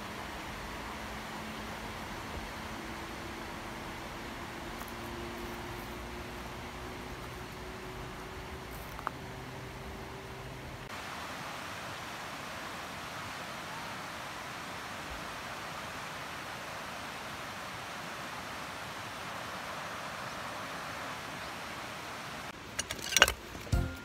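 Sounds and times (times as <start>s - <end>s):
river water rushing: 0.0s - 22.8s.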